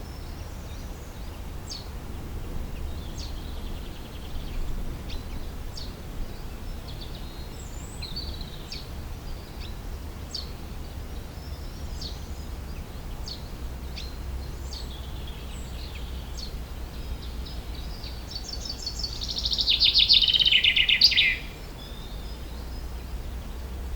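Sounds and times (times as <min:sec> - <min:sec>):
low wind rumble: 0:00.0 - 0:23.9
songbirds chirping: 0:00.0 - 0:23.9.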